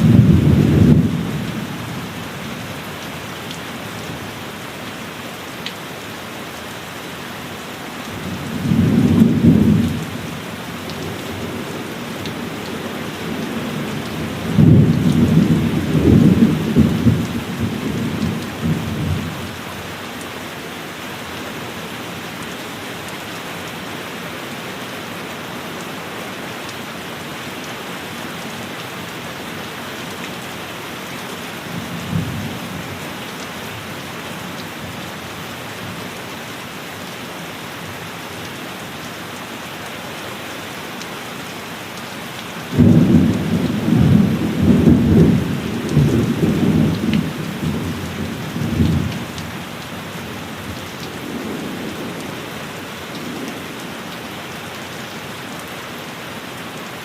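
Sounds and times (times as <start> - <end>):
thunder rumbling: 0.0 - 1.5, 13.5 - 19.4, 42.7 - 49.4
steady rain: 0.0 - 57.0.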